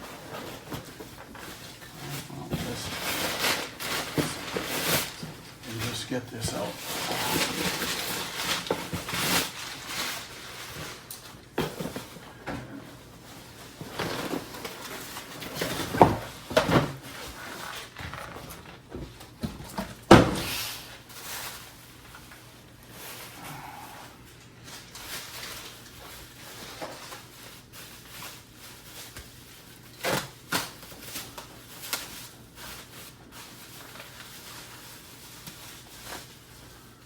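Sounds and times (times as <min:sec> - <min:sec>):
packing material rustling: 0:00.0 - 0:12.2, 0:24.6 - 0:37.0.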